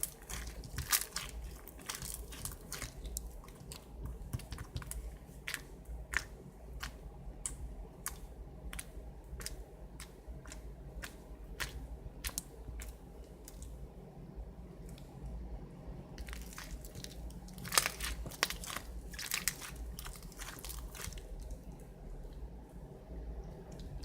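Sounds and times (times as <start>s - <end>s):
foam beads crackling and popping: 0.0s - 9.6s, 16.2s - 21.6s.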